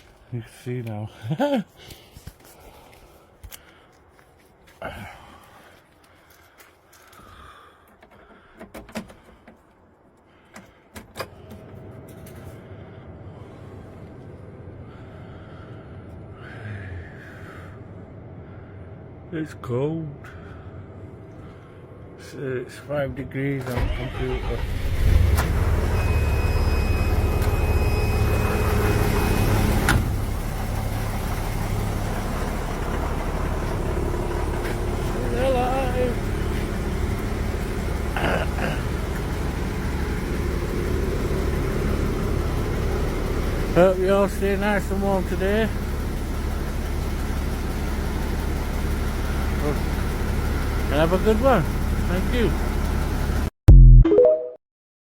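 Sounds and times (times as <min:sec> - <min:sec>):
engine starting and running: 0:10.4 - 0:16.4, 0:23.1 - 0:53.5.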